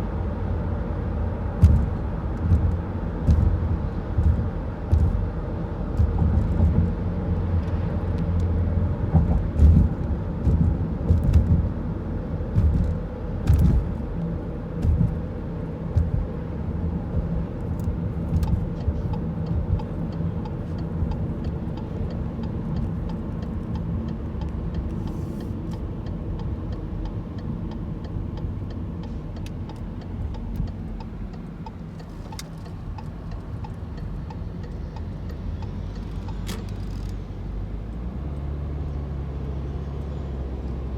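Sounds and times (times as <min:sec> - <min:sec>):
vehicle engine rumbling: 0:00.0 - 0:40.9
faint regular ticking: 0:18.4 - 0:37.2.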